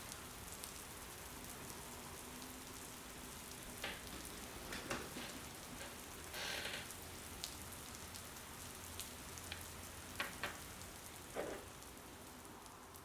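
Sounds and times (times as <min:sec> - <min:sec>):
steady rain falling: 0:00.0 - 0:13.0
sharp drip ticks: 0:06.0 - 0:13.0.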